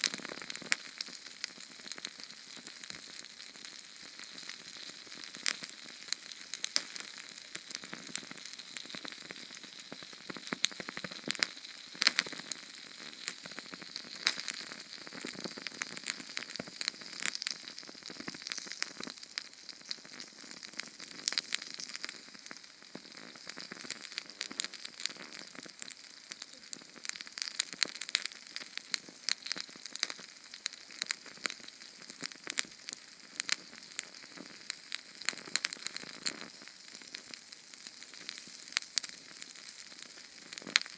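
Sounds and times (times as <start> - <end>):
small flame hissing and crackling: 0.0 - 40.9.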